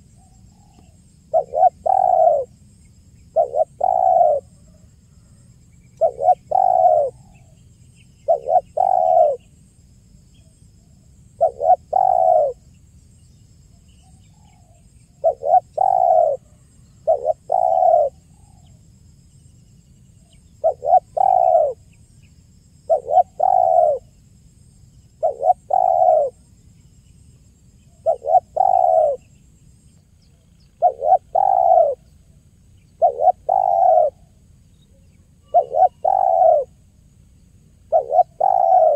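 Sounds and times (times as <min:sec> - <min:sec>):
dove cooing: 0:00.0 - 0:02.5, 0:03.3 - 0:05.4, 0:06.0 - 0:07.6, 0:08.2 - 0:09.5, 0:11.4 - 0:12.6, 0:14.6 - 0:18.7, 0:20.6 - 0:21.8, 0:22.9 - 0:24.1, 0:25.2 - 0:26.4, 0:28.0 - 0:29.3, 0:30.8 - 0:32.1, 0:32.9 - 0:36.8, 0:37.9 - 0:38.9.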